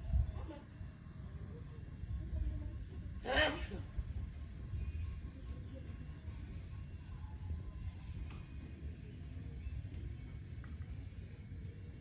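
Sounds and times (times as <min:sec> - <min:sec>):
wind rumble on microphone: 0:00.0 - 0:01.1, 0:01.9 - 0:08.9.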